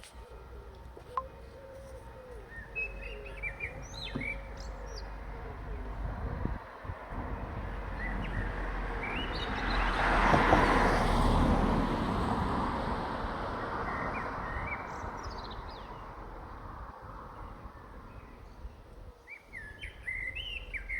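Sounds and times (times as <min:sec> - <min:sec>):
small birds chirping: 0:00.0 - 0:06.5, 0:13.8 - 0:20.9
vehicle passing by: 0:02.8 - 0:17.8.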